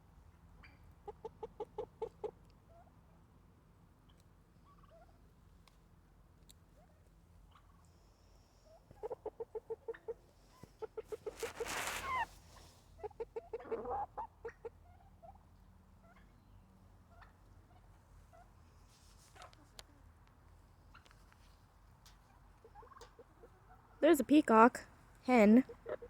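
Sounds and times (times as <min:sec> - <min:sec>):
faint chirps and clucks: 0:00.2 - 0:24.0, 0:25.6 - 0:26.0
turkey gobbling: 0:04.6 - 0:05.1, 0:07.5 - 0:07.9, 0:08.7 - 0:12.3, 0:13.0 - 0:15.4, 0:17.1 - 0:18.5, 0:22.3 - 0:24.0, 0:25.7 - 0:26.0.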